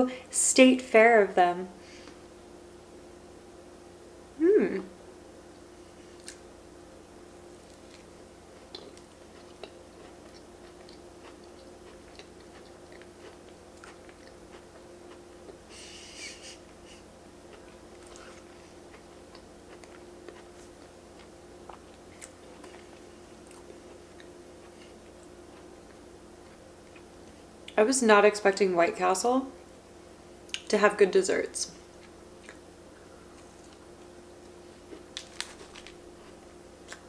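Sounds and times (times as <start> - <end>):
chewing cake: 7.5 - 16.8, 17.5 - 27.1.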